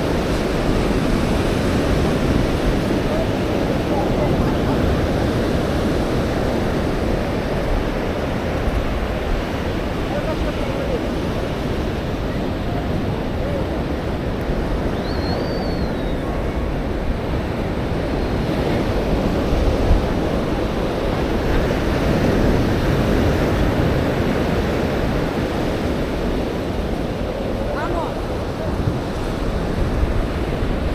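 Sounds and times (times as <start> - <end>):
surf washing onto beach: 0.0 - 30.9
wind rumbling on microphone: 0.0 - 30.9
high whistle-like tone: 14.9 - 16.4.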